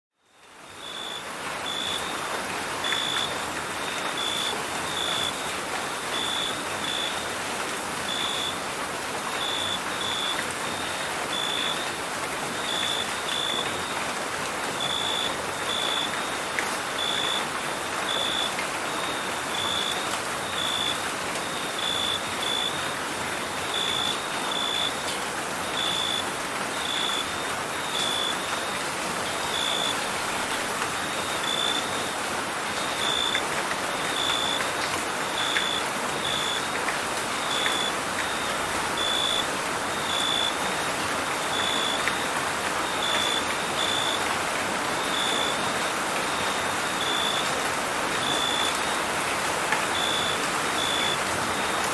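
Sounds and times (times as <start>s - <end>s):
steady rain hiss: 0.2s - 51.9s
crickets chirping: 0.8s - 2.2s, 2.8s - 5.4s, 18.1s - 23.0s, 31.0s - 32.2s, 35.3s - 36.7s, 37.4s - 44.3s, 45.0s - 47.5s, 49.9s - 51.8s.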